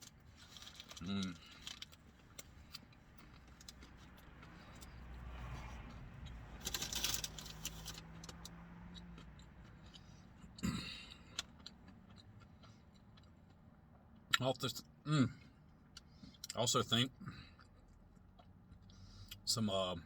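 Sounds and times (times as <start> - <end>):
low rumble with hum: 0.0 - 20.0
paper food wrapper crinkling: 0.4 - 2.0, 6.6 - 8.3.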